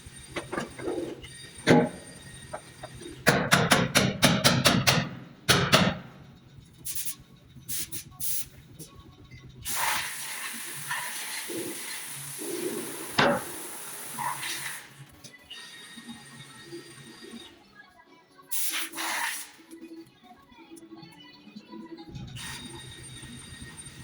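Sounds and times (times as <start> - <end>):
sharp knocks on sheet steel: 3.3 - 6.1.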